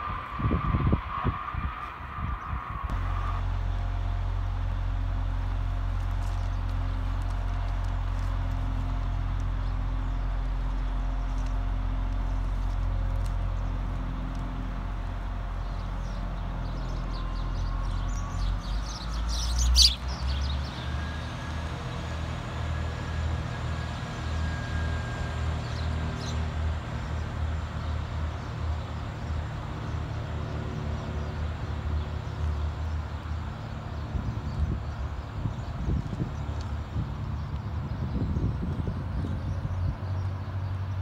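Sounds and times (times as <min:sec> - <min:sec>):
diesel train engines accelerating: 0:00.0 - 0:41.0
faint rising whine: 0:02.9 - 0:29.5.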